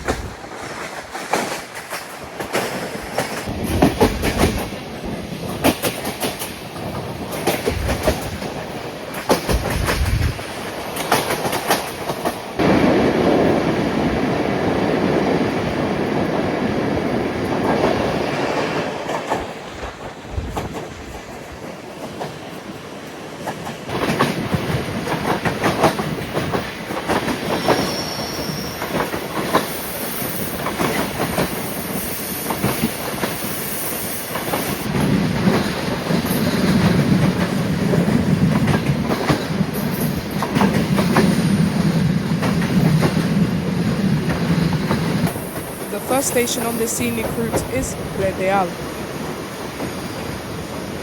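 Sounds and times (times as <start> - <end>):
train wheels clicking over rail joints: 0.0 - 12.8, 17.4 - 48.2
high wheel squeal: 27.6 - 28.9.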